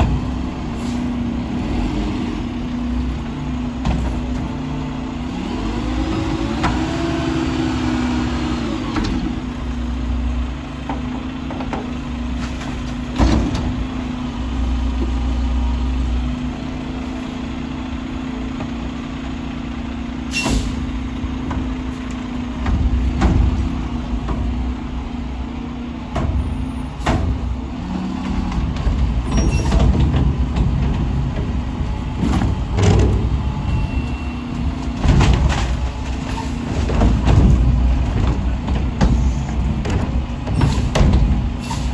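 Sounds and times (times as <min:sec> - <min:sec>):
garbage truck engine revving: 0:00.0 - 0:41.9
knocks and clanks: 0:03.5 - 0:04.6, 0:10.7 - 0:15.4, 0:20.4 - 0:41.9
air brake hiss: 0:20.3 - 0:20.8, 0:41.6 - 0:41.9.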